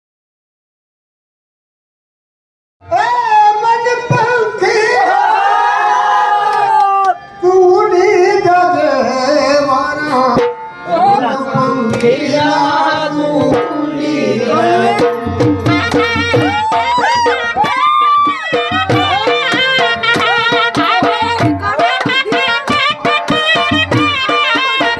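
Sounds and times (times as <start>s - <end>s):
person singing: 7.4s - 24.9s
folk drumming: 10.3s - 24.9s
deep drum beats: 10.4s - 24.9s.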